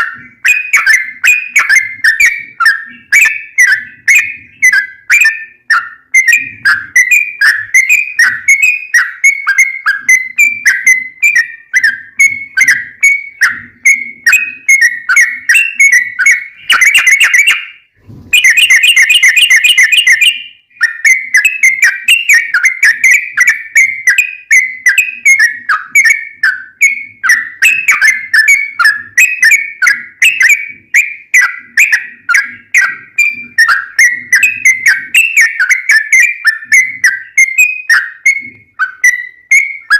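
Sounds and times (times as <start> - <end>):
bird chirping and trilling: 0.0 - 39.9.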